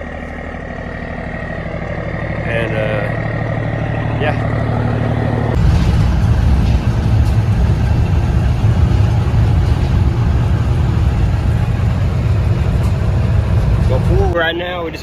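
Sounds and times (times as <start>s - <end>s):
heavy diesel engine rumbling: 0.0s - 15.0s.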